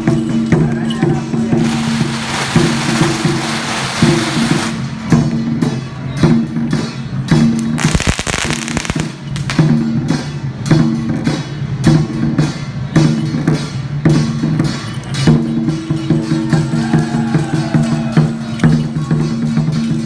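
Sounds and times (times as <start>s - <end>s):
drums and cymbals beating: 0.0s - 20.0s
firecrackers crackling: 0.8s - 5.2s, 7.5s - 9.8s.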